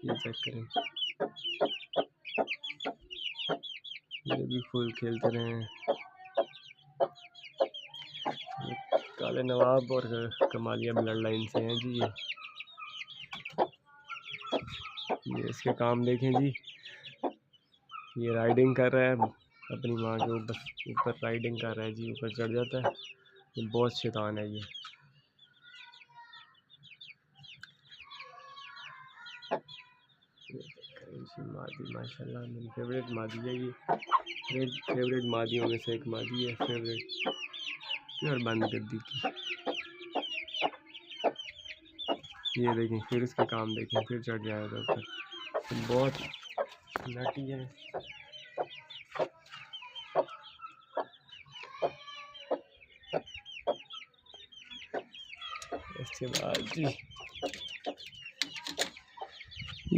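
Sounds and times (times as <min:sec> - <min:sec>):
hen clucking: 0:00.0 - 0:24.9, 0:30.5 - 0:59.9
chicks peeping: 0:00.0 - 0:59.9.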